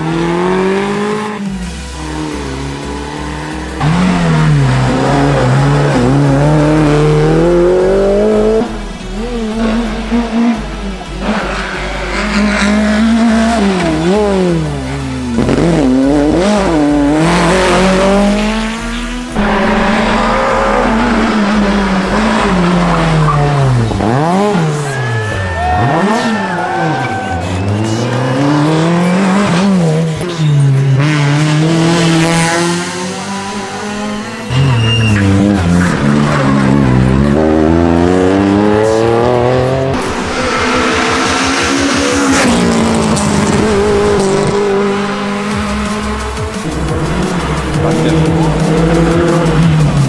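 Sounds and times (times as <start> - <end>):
rally car engines revving: 0.0 - 50.0
tyre squeal: 34.3 - 36.8.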